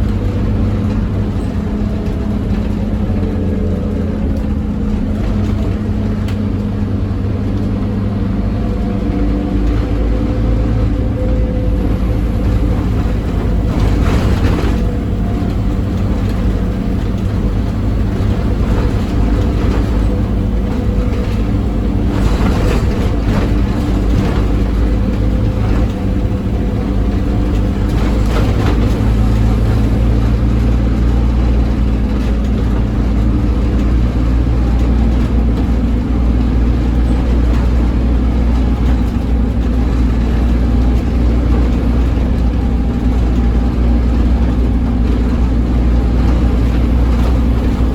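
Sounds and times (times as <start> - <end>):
bus diesel engine droning: 0.0 - 47.9.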